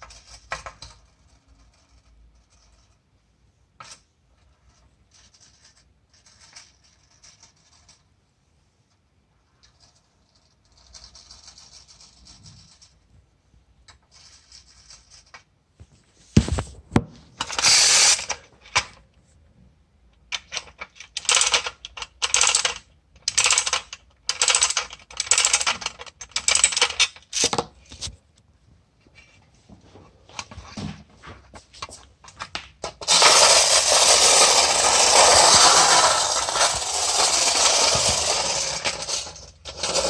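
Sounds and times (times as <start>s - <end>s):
clockwork toy whirring and clattering: 0.0s - 3.0s, 4.7s - 8.1s, 9.6s - 13.0s, 13.9s - 15.4s, 17.4s - 18.9s, 20.3s - 27.6s, 32.8s - 40.0s.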